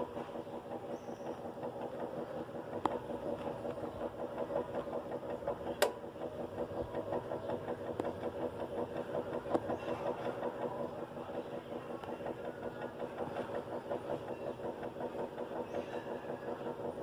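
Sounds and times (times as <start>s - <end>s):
washing machine humming: 0.0s - 17.0s
sharp clicks: 4.8s - 6.0s, 7.8s - 10.4s.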